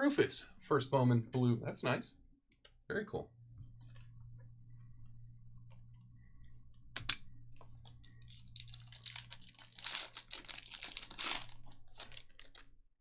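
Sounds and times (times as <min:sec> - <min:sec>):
low electrical hum: 0:00.0 - 0:12.8
foil wrapper crinkling and tearing: 0:08.2 - 0:12.7.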